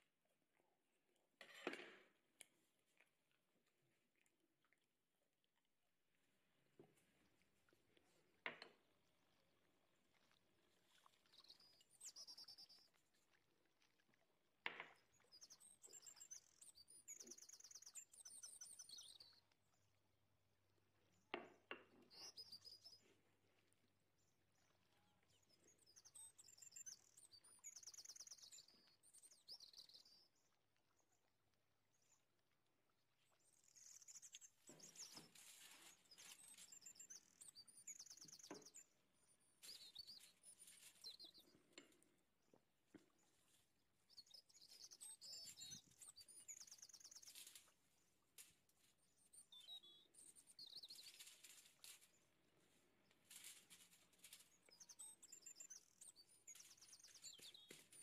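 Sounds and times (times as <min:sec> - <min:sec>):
bird chirping and trilling: 0:33.7 - 0:38.9, 0:44.1 - 0:47.7.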